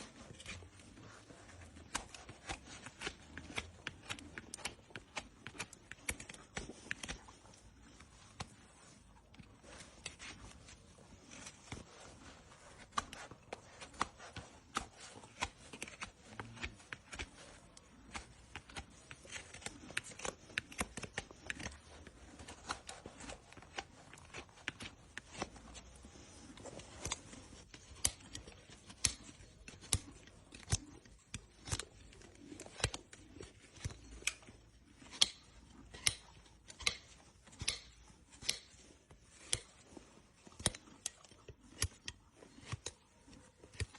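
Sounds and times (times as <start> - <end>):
hand tools snipping hoof: 26.8 - 38.8.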